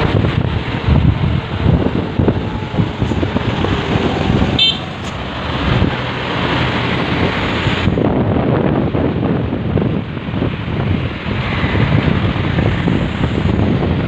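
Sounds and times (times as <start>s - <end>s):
heavy road traffic: 0.0s - 14.0s
wind buffeting microphone: 0.0s - 14.0s
short high horn toot: 4.6s - 5.0s.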